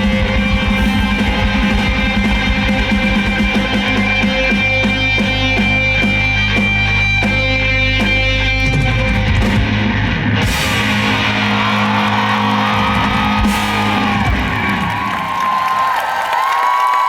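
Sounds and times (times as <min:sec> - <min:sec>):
crowd cheering and screaming: 0:00.0 - 0:05.0, 0:10.5 - 0:17.0
live rock band: 0:00.0 - 0:15.9.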